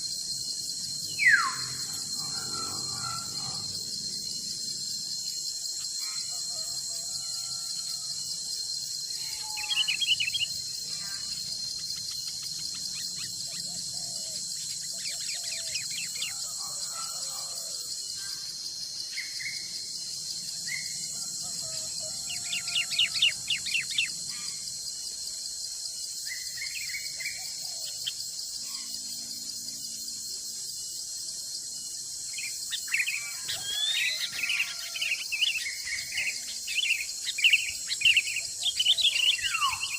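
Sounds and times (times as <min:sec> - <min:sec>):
high-pitched insect chorus: 0:00.0 - 0:39.9
birds calling and chirping: 0:00.8 - 0:07.0, 0:09.1 - 0:24.7, 0:32.2 - 0:39.9.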